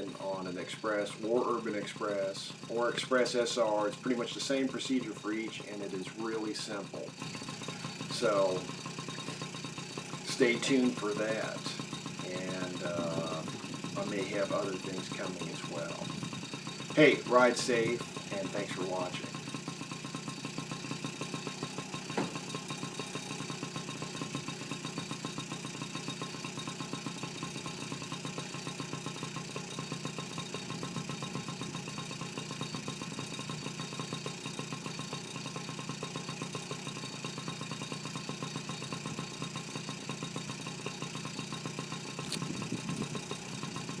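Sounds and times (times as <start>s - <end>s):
two-stroke engine idling: 0.0s - 44.0s.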